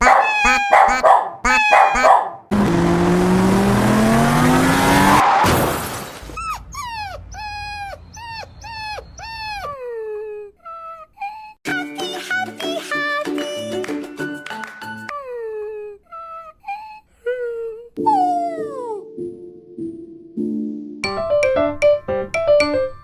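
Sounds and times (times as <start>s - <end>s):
dog yelping and whimpering: 0.0s - 2.4s, 6.4s - 11.6s.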